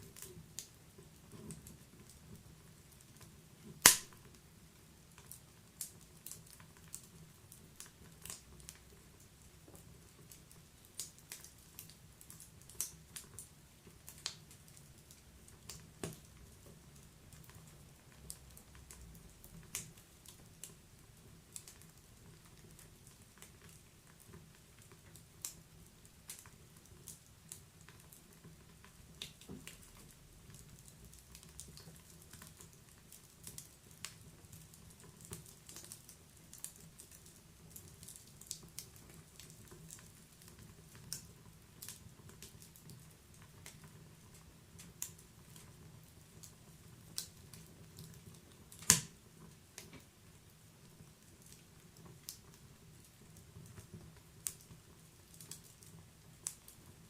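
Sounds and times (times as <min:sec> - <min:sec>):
firewood popping and snapping: 0:03.7 - 0:04.2, 0:29.2 - 0:43.0, 0:47.1 - 0:49.2.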